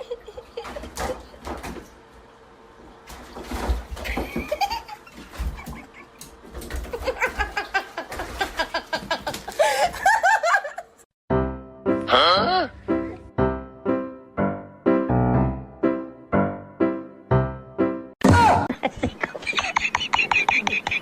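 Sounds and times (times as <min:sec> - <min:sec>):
person laughing: 0:00.0 - 0:01.4, 0:06.9 - 0:11.0, 0:18.2 - 0:21.0.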